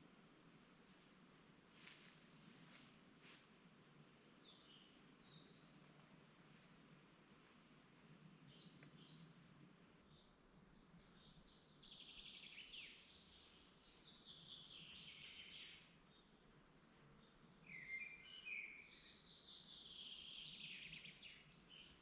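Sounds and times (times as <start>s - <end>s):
faint low background noise: 0.0s - 22.0s
songbirds singing and chirping: 3.6s - 6.3s, 7.6s - 22.0s.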